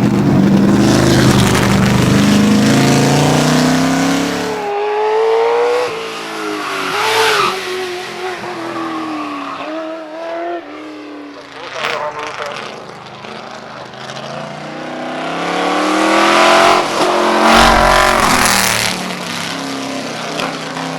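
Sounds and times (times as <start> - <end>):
higher engine note rising and falling: 0.0 - 7.9, 14.6 - 19.6
racing car engine accelerating: 0.0 - 8.2, 12.6 - 20.9.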